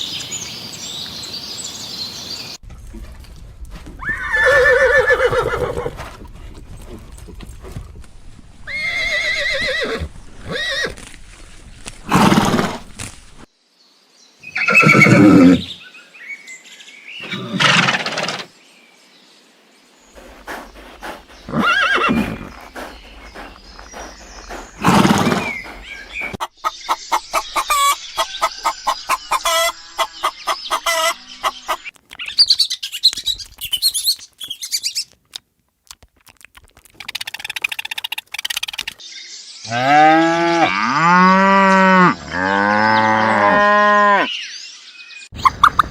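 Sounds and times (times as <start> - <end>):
horse whinny: 4.0 - 6.0, 8.7 - 11.0, 14.6 - 15.7, 21.5 - 22.8, 24.8 - 25.7
animal calls: 20.2 - 31.8
clicking chirps: 31.9 - 39.0.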